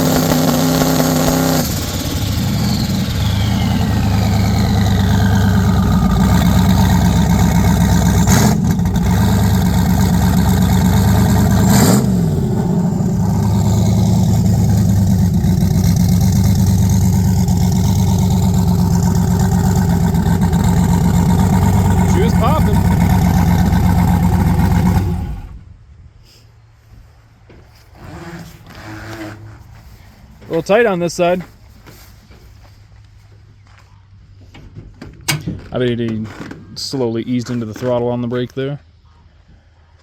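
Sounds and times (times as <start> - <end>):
pickup engine revving: 0.0 - 25.6
turbo whine: 0.0 - 25.7.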